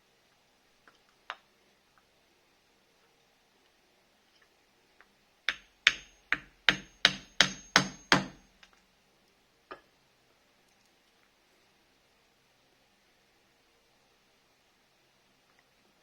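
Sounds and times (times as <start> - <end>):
hammer strikes: 5.5 - 8.5.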